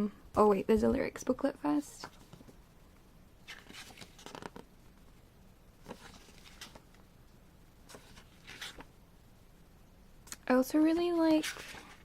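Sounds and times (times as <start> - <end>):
paper pages rustling: 3.4 - 4.7, 5.8 - 7.0, 7.8 - 8.9, 11.2 - 12.0.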